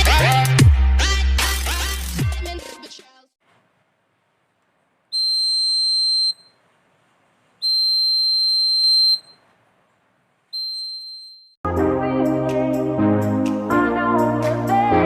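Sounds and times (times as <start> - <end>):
high-pitched alarm buzzer beeping: 5.2 - 6.5, 7.6 - 9.4, 10.6 - 11.6.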